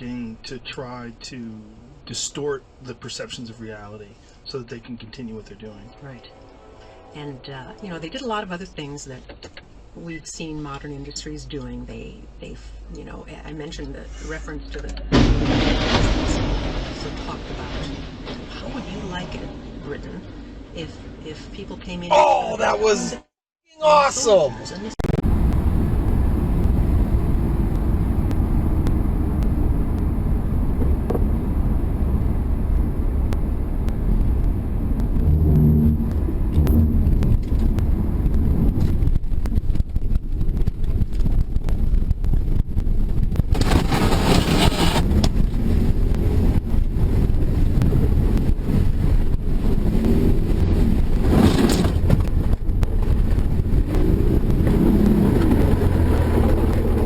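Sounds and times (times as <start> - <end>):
car engine and road noise: 25.0 - 57.0
loud rushing noise: 43.5 - 52.2.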